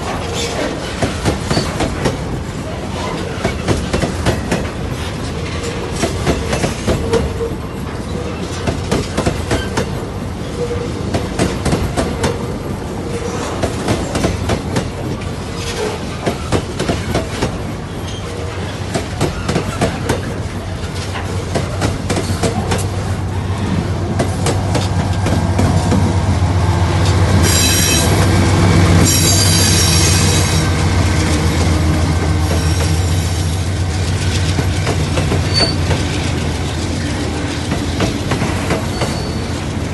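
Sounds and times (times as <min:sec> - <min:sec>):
train wheels clattering over rail joints: 0:00.0 - 0:26.3, 0:29.0 - 0:39.9
high-pitched wheel squeal: 0:27.4 - 0:28.2, 0:29.0 - 0:30.6, 0:35.5 - 0:35.9, 0:38.9 - 0:39.5.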